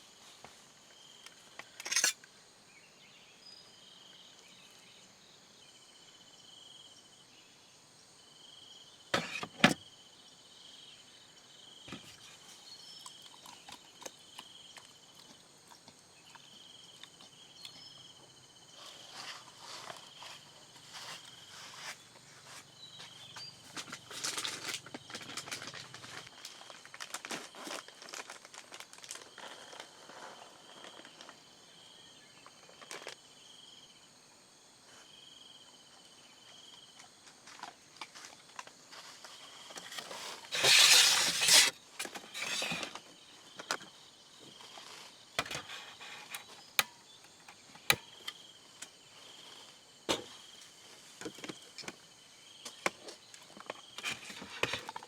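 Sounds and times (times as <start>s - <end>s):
rustling handling noises: 38.9s - 43.0s.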